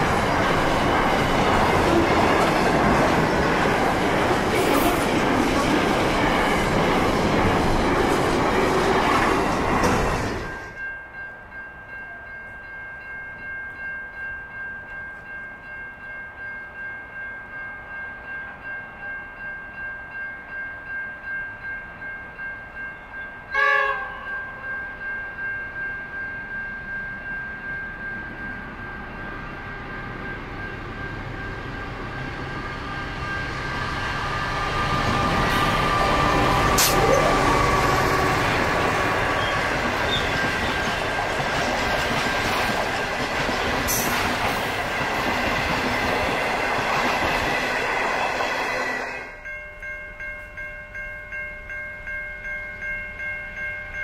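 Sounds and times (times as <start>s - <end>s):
freight train rolling past: 0.0s - 11.3s, 11.9s - 49.6s
train horn toot: 23.5s - 24.4s, 34.9s - 38.4s
diesel locomotive rumble: 29.6s - 49.2s.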